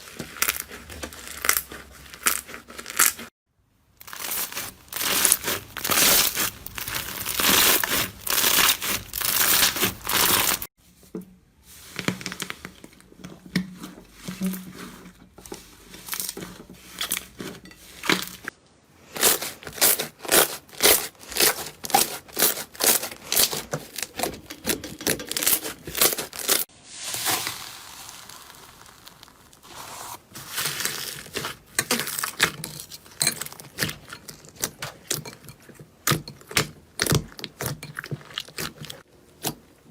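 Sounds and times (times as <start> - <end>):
slime crackling and popping: 4.0 - 10.7, 19.2 - 32.4.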